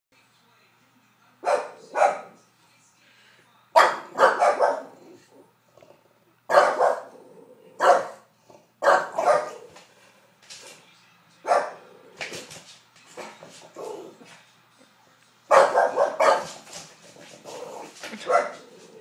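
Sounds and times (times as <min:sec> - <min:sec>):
dogs barking: 0:01.4 - 0:02.4, 0:03.8 - 0:05.3, 0:06.5 - 0:09.9, 0:11.4 - 0:12.4, 0:15.5 - 0:19.0.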